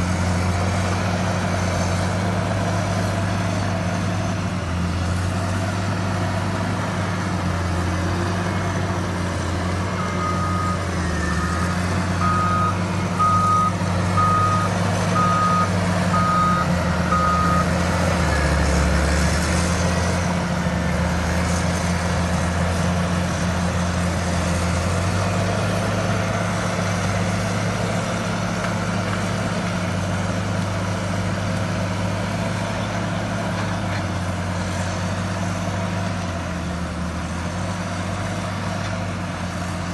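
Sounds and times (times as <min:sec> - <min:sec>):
diesel engine running: 0:00.0 - 0:39.9
reversing alarm beeping: 0:10.0 - 0:17.7.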